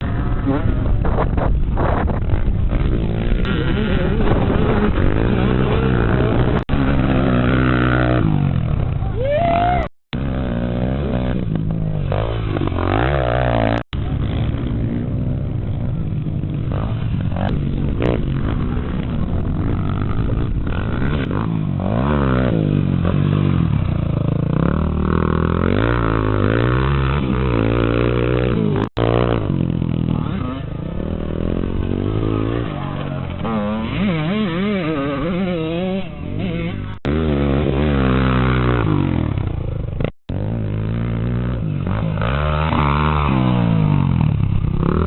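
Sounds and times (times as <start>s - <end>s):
motocross bike engines revving: 0.0s - 45.0s.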